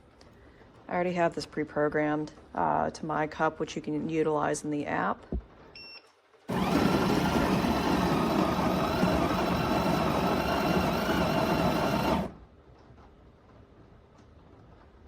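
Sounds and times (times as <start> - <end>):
coffee grinder grinding beans: 6.5 - 12.4.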